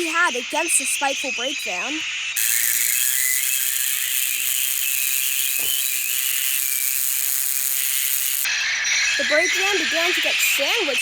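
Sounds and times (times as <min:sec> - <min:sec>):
steady high hiss: 0:02.4 - 0:08.6
faint wavering squeals: 0:02.4 - 0:10.6.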